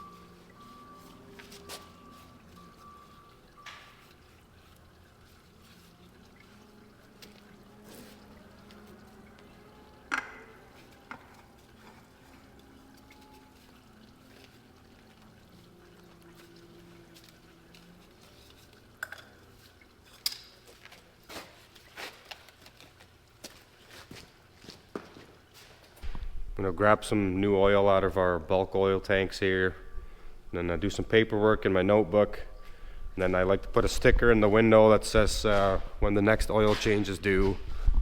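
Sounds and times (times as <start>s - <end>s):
oil trickling into a pan: 0.0s - 37.9s.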